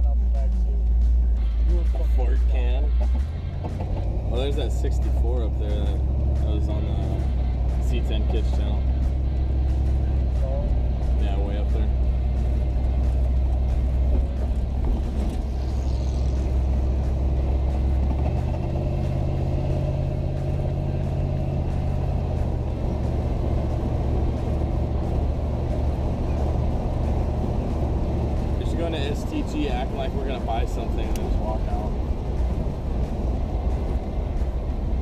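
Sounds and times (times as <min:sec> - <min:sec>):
road noise: 0:00.0 - 0:35.0
truck engine drone: 0:00.0 - 0:35.0.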